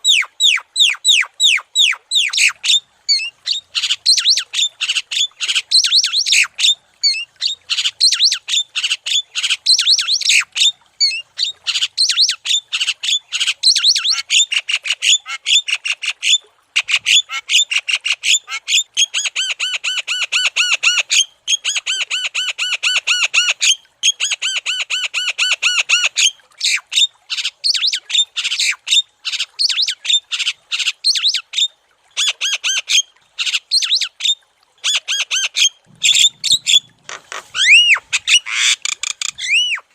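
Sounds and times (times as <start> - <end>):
bird calling with harsh squawks: 32.2 - 39.9.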